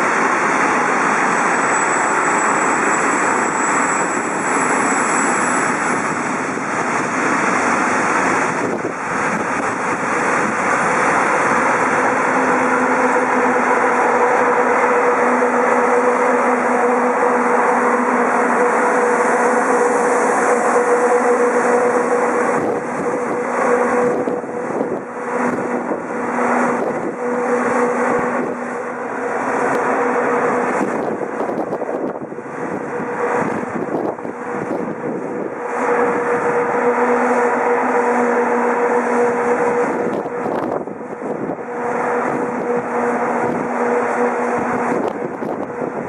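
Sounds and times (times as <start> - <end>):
electric locomotive hum: 0.0 - 46.0
train wheels rumbling and clattering: 0.0 - 46.0.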